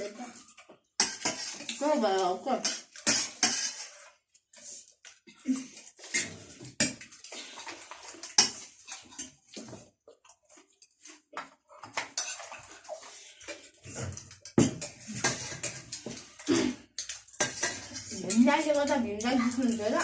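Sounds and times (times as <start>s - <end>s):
spoons clinking on dishes: 1.0s - 1.8s, 14.2s - 20.0s.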